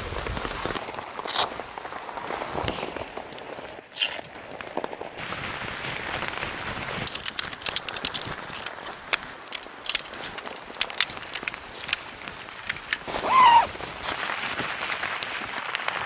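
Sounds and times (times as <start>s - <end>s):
rain falling: 0.0s - 16.0s
sharp drips and ticks: 7.0s - 13.1s.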